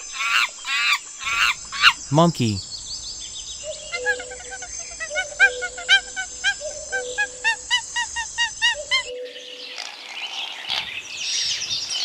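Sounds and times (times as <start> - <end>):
hissy outdoor background: 0.0 - 12.0
faint scattered calls: 3.7 - 9.1.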